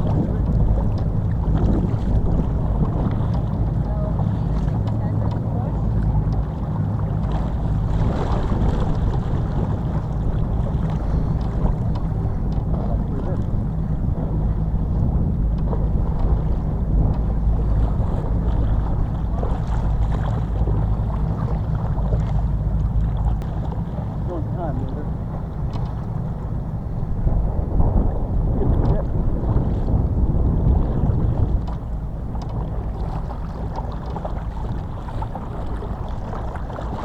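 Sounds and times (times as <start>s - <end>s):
boat motor rumbling: 0.0s - 37.0s
wind buffeting microphone: 0.0s - 37.0s.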